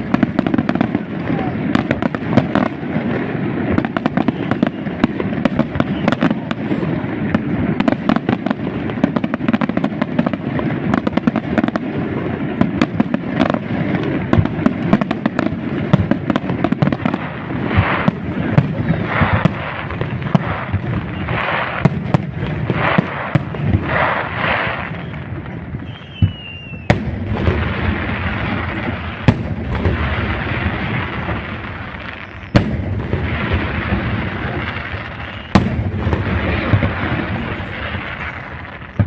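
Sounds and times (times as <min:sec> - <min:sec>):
firework hiss and crackle: 0:00.0 - 0:39.0
firework shells bursting: 0:00.0 - 0:39.0
falling firework whistle: 0:03.7 - 0:06.9, 0:18.8 - 0:39.0.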